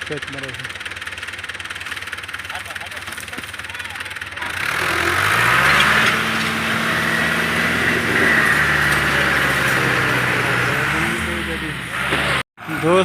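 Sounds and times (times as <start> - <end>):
tractor diesel engine revving: 0.0 - 13.0.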